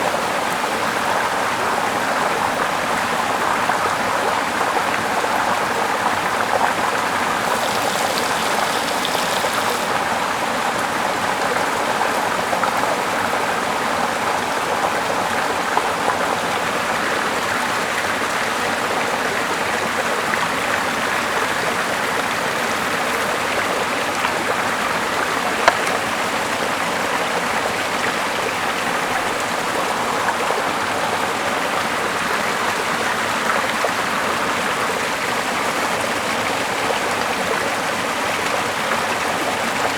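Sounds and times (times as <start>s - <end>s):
river flowing over rocks: 3.3s - 12.6s.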